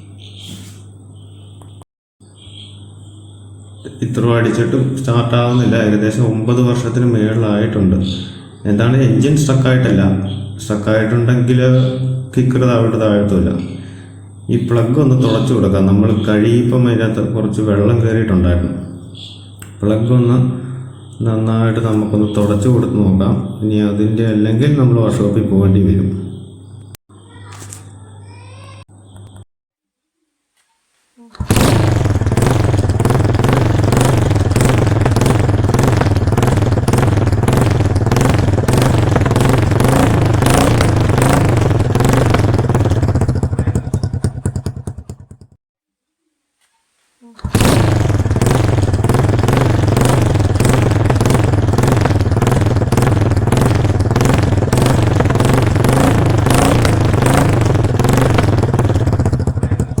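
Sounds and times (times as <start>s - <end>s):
motorcycle engine running: 31.4s - 45.6s, 47.4s - 60.0s.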